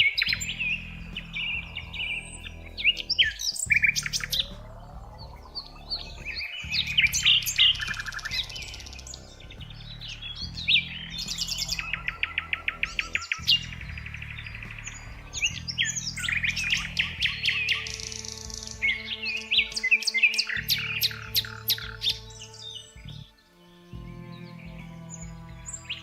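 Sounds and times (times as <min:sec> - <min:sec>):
bird fast trill: 0:00.0 - 0:23.3
songbirds chirping: 0:00.0 - 0:26.0.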